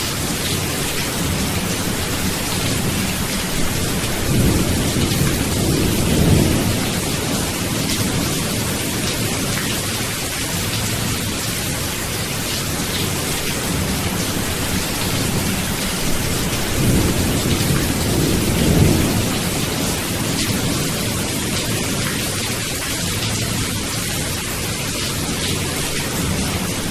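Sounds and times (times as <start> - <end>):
heavy rain: 0.0 - 26.9
low rolling thunder: 1.2 - 9.5, 13.6 - 22.2.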